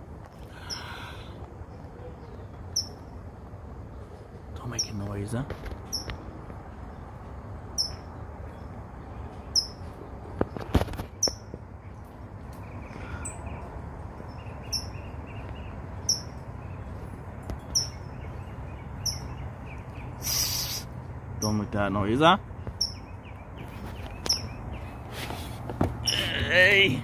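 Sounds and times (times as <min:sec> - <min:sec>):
steady low hum: 0:00.0 - 0:27.0
small bird chirping: 0:01.7 - 0:03.2, 0:05.8 - 0:06.3, 0:07.7 - 0:10.0, 0:10.8 - 0:21.7, 0:22.5 - 0:25.2.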